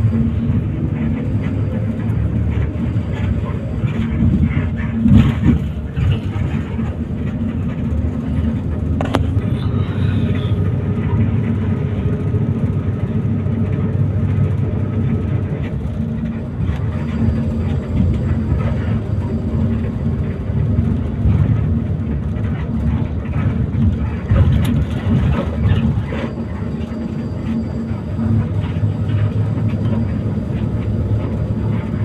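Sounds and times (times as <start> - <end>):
bus engine and road noise: 0.0 - 32.0.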